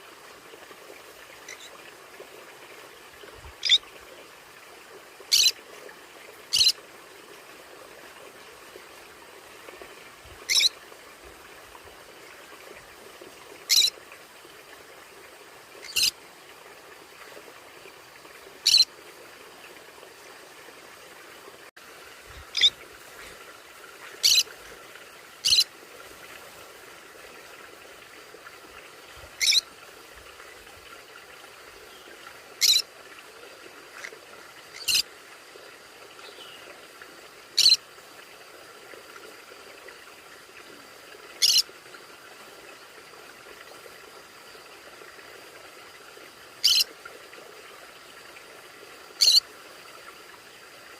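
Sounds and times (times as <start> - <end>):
parrot high-pitched calls: 5.3 - 5.5, 6.5 - 6.7, 10.5 - 10.7, 13.7 - 13.9, 15.8 - 16.1, 18.6 - 18.9, 22.6 - 22.8, 24.2 - 24.4, 25.4 - 25.6, 29.4 - 29.6, 32.6 - 32.8, 34.8 - 35.0, 37.6 - 37.8, 41.4 - 41.6, 46.6 - 46.9, 49.2 - 49.4.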